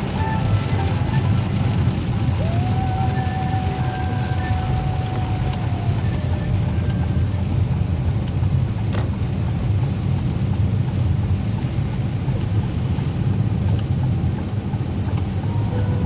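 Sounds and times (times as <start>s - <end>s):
hiss of spray and rain: 0.0s - 14.4s
car engine and tyres rumbling: 0.0s - 16.0s.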